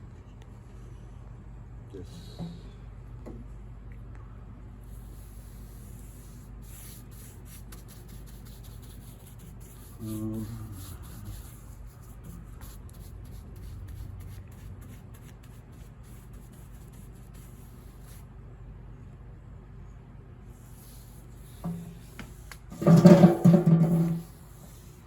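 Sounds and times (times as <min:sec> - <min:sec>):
steady low hum: 0:00.0 - 0:25.0
brush rubbing on wood: 0:05.1 - 0:18.2, 0:20.6 - 0:25.0.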